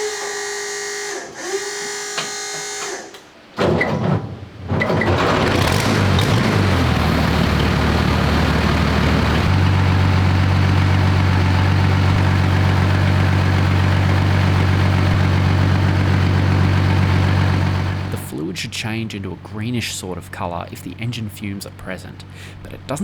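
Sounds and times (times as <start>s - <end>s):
diesel engine idling: 5.2s - 23.0s.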